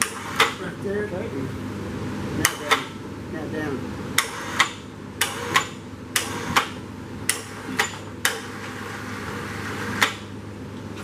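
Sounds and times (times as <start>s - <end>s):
sharp metal clanks: 4.2s - 8.5s.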